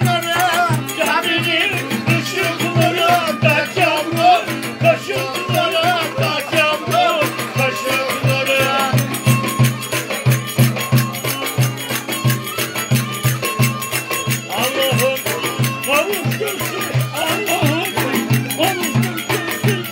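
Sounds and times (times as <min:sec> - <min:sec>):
folk dance music: 0:00.0 - 0:19.9
wavering melody line: 0:00.2 - 0:19.9.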